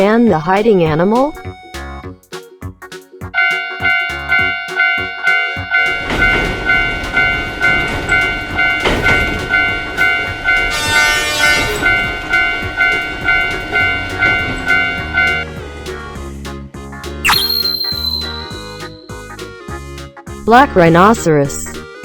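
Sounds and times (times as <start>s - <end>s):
train horn: 3.4s - 15.4s
railroad crossing bell ringing: 3.4s - 15.5s, 17.3s - 19.2s
train rumbling past: 5.6s - 16.3s.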